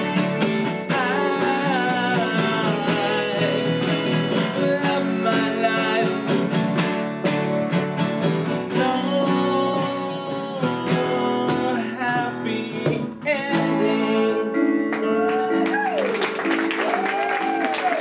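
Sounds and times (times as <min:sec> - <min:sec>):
person singing: 0:00.0 - 0:06.8, 0:08.6 - 0:16.1
strummed acoustic guitars: 0:00.0 - 0:16.8.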